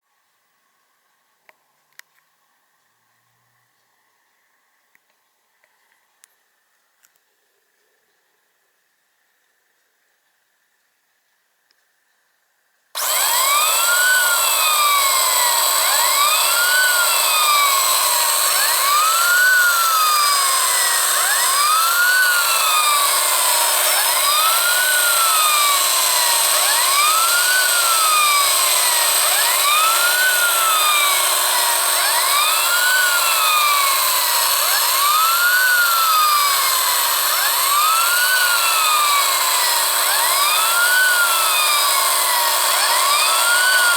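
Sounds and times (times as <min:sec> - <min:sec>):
electric motor whir: 0:13.0 - 0:43.9.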